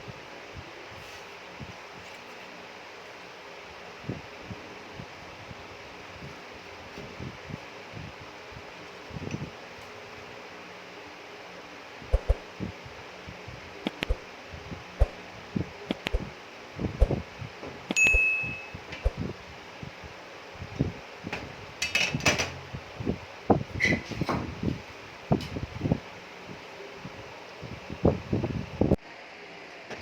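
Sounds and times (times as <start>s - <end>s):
steady low hum: 0.0s - 21.8s
ringing metallic ping: 17.9s - 18.9s.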